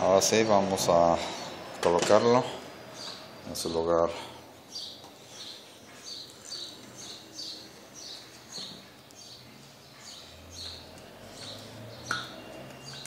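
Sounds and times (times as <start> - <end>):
small bird chirping: 4.7 - 13.0.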